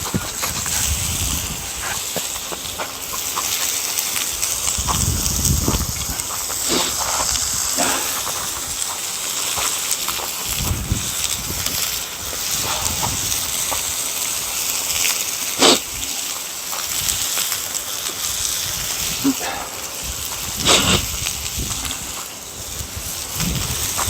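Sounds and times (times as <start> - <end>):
wood fire hissing and crackling: 0.0 - 24.0
sharp pop of fire: 7.7 - 8.6, 15.6 - 15.9, 20.6 - 21.1.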